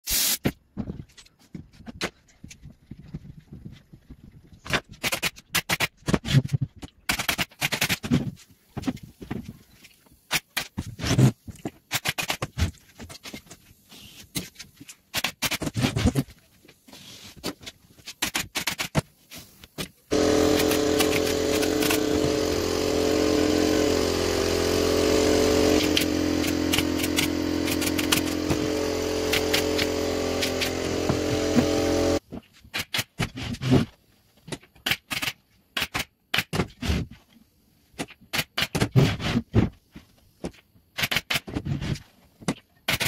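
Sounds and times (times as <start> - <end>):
motor humming: 20.1 - 32.2.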